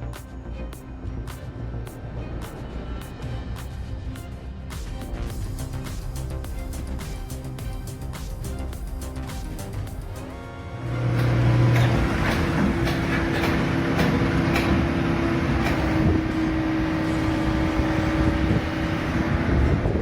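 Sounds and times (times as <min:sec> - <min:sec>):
heavy machine running: 0:00.0 - 0:20.0
scattered knocks: 0:11.2 - 0:15.0.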